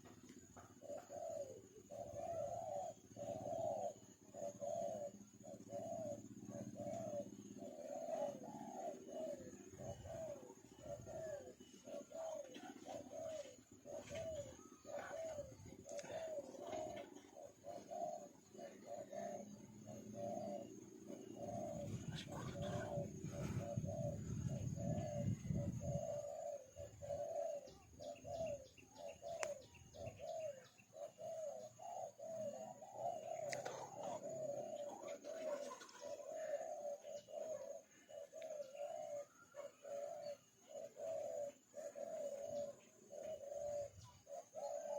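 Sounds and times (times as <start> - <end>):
dove cooing: 0.0 - 44.9
high chirping ticks: 15.7 - 17.3, 28.4 - 30.2, 33.3 - 34.2.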